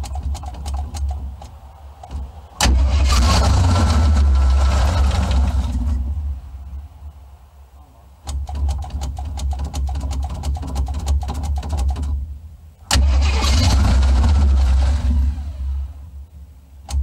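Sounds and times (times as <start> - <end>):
starter cranking engine: 2.6 - 6.0, 12.9 - 15.8
car engine running loudly: 2.6 - 6.2.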